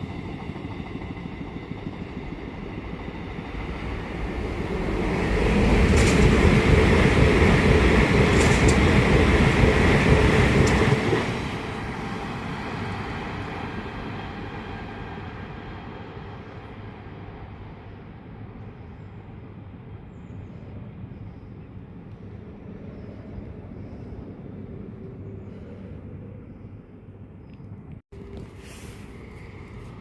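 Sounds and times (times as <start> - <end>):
train passing at speed: 0.0 - 27.1, 28.2 - 30.0
wheels clicking on rails: 5.0 - 11.3.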